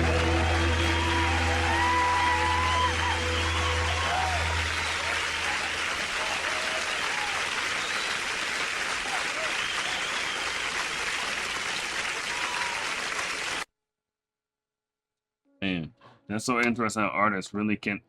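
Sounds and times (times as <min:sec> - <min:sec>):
people shouting: 0:00.0 - 0:07.4
audience applauding and cheering: 0:00.0 - 0:13.7.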